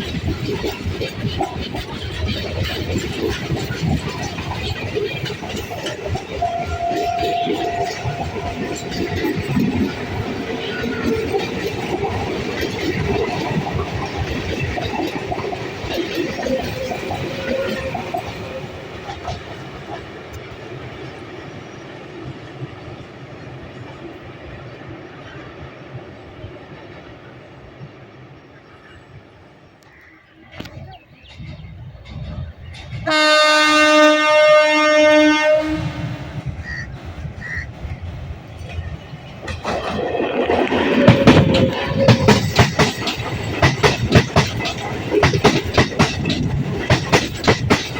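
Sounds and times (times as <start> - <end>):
train wheels clattering over rails: 0.0 - 24.6, 30.7 - 33.9, 35.6 - 47.9
train horn blast: 6.3 - 9.3, 33.0 - 36.9, 41.0 - 42.4
wheels clattering over rail joints: 38.5 - 47.9.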